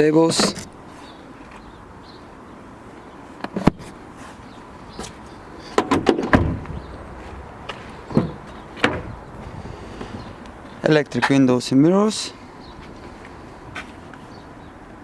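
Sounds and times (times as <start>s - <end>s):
heavy thud: 5.8s - 7.4s, 8.1s - 9.5s.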